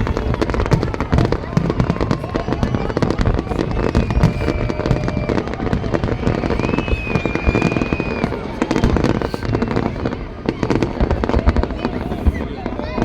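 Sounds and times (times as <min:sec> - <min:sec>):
fireworks crackling and popping: 0:00.0 - 0:13.0
fireworks low booms: 0:00.0 - 0:13.0
high steady whistle: 0:03.6 - 0:09.5.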